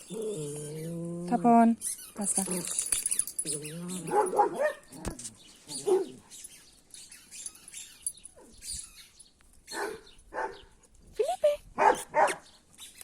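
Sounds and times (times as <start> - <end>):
dog whining: 0.0 - 2.2, 3.1 - 6.5.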